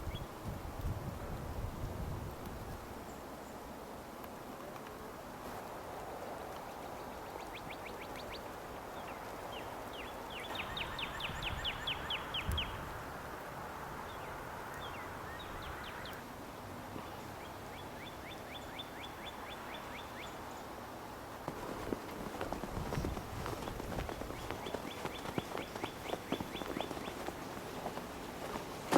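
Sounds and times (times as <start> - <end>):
songbird trilling: 10.0 - 12.8.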